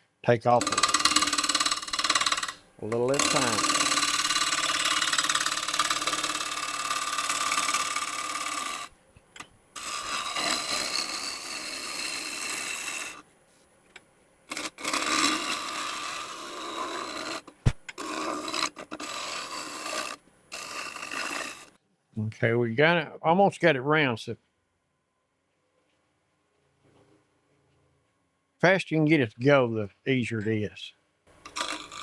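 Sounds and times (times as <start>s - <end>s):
gouge scraping wood on lathe: 0.6s - 9.0s, 9.8s - 13.2s, 14.5s - 21.7s, 31.4s - 32.0s.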